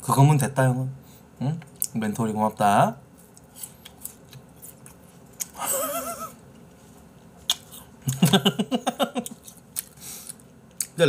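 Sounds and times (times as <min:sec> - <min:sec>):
close chewing with wet mouth clicks: 0:09.2 - 0:11.0.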